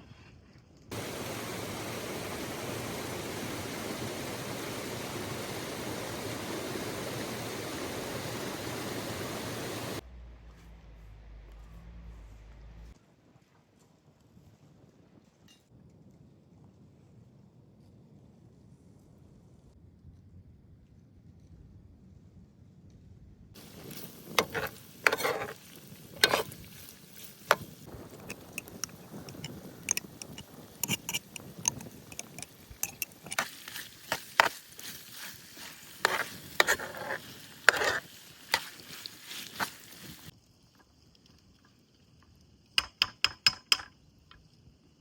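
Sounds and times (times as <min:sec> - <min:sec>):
utensil scraping in a pot: 0:23.6 - 0:40.3.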